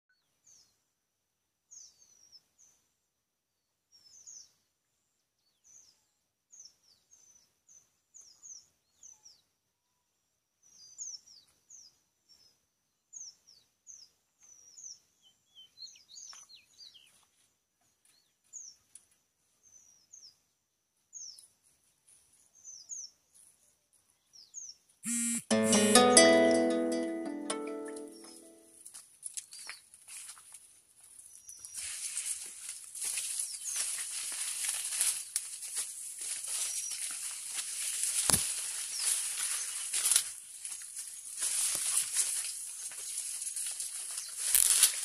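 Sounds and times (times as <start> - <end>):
small birds chirping: 1.7 - 2.9, 3.6 - 25.4, 29.4 - 30.0, 31.1 - 45.0
faint steady high tone: 25.1 - 28.8.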